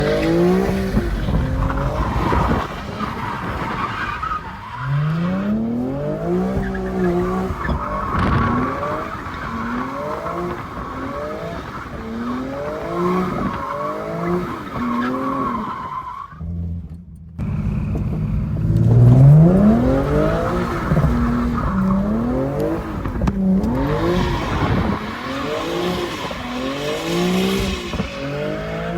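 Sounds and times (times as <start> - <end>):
car engine revving hard: 17.4 - 28.9.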